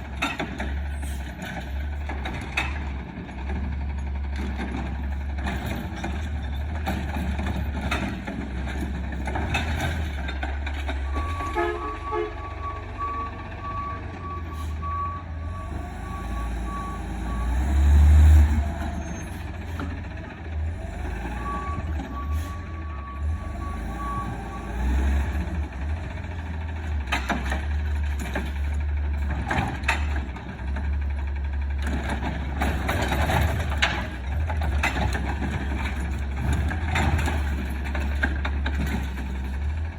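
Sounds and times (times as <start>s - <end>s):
garbage truck engine rumble: 0.0s - 39.9s
backup alarm beeping: 11.1s - 15.2s
sharp knocks and clanks: 26.6s - 31.0s.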